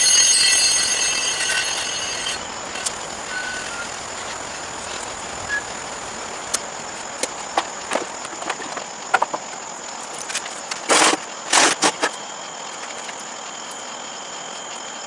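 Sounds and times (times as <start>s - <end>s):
compressed air hissing with whistle: 2.4s - 6.6s.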